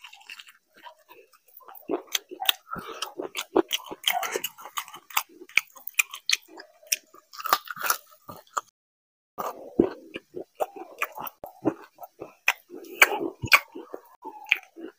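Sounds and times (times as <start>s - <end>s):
chewing and lip smacking: 0.0s - 8.7s, 9.4s - 14.9s
wet mouth clicks: 1.7s - 7.7s, 9.4s - 14.9s.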